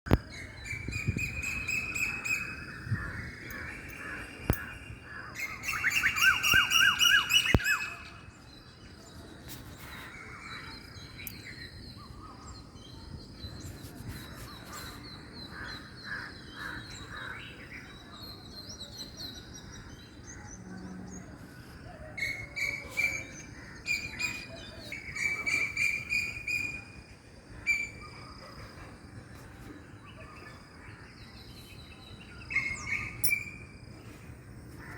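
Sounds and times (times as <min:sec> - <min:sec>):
birds singing: 0:00.1 - 0:34.9
whistled bird calls: 0:05.4 - 0:08.2, 0:22.0 - 0:27.0, 0:32.5 - 0:33.8.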